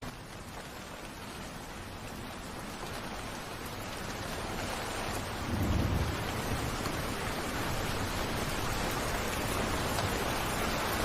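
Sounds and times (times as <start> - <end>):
steady rain falling: 0.0 - 11.0
distant thunder rumble: 5.2 - 10.9.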